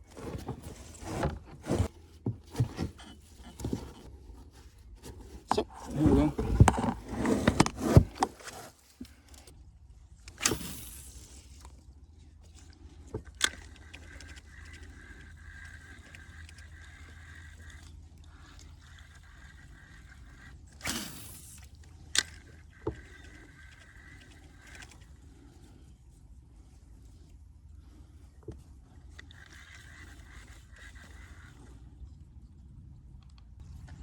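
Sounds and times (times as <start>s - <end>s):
fishing reel whirring: 13.4s - 25.2s, 29.2s - 31.7s
fishing reel click: 18.9s - 25.0s.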